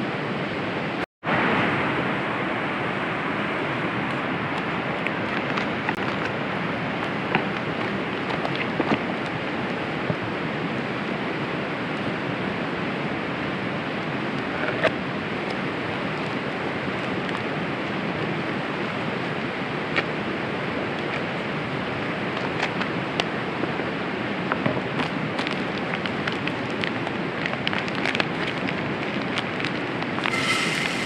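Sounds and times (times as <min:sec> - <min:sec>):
burger sizzling in hot oil: 0:30.2 - 0:31.0.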